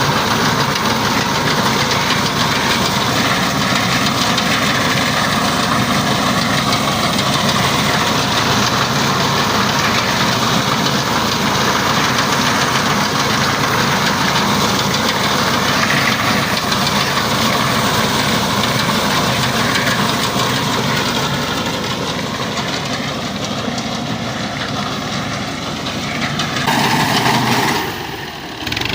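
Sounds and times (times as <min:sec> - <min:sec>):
reaper mechanical clatter: 0:00.0 - 0:28.9
tractor engine running under load: 0:00.0 - 0:28.9.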